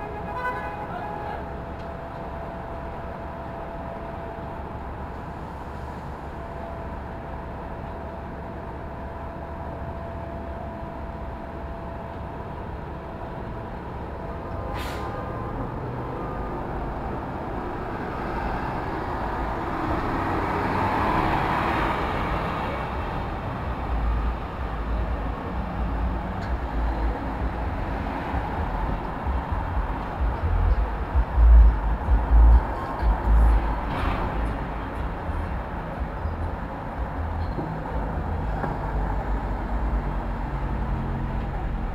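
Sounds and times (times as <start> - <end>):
city street traffic: 0.0 - 41.9
heavy low rumbling: 22.9 - 38.4.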